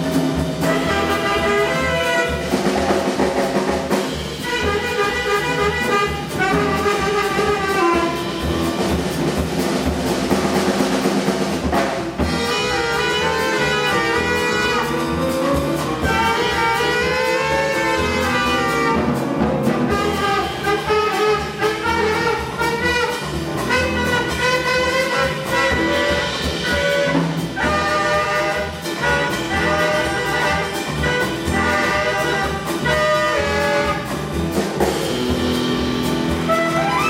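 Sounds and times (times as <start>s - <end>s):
small jazz band: 0.0s - 37.0s
jazz chorus singing in harmony: 12.3s - 34.2s.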